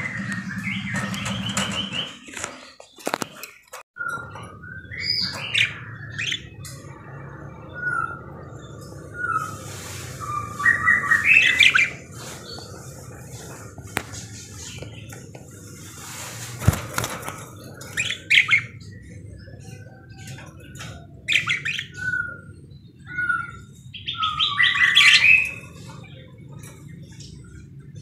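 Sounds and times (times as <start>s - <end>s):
budgerigar chirping and chattering: 4.8s - 6.6s, 10.2s - 13.0s, 17.8s - 20.2s, 21.2s - 26.2s.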